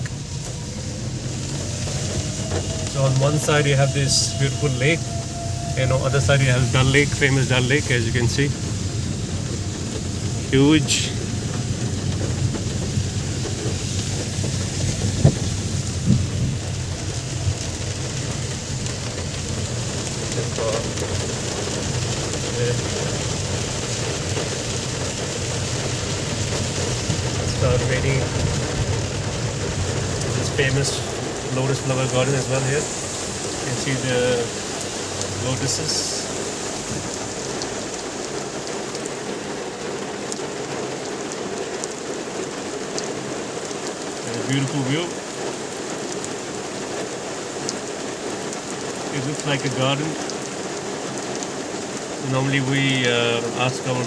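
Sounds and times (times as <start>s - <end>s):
low rumble: 0.0s - 35.4s
rain falling on a car: 0.0s - 54.0s.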